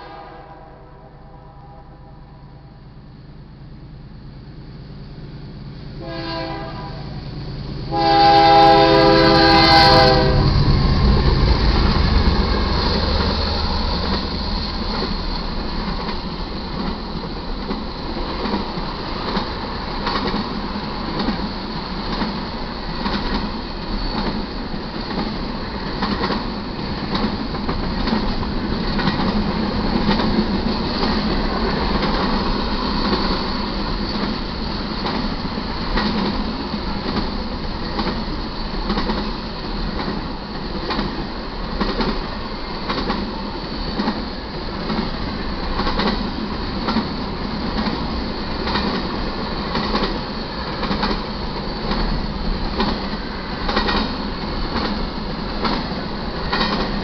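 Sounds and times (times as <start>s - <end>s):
locomotive horn blast: 0.0s - 2.8s, 6.0s - 7.2s, 7.9s - 10.6s
train wheels clattering on rail: 6.0s - 57.0s.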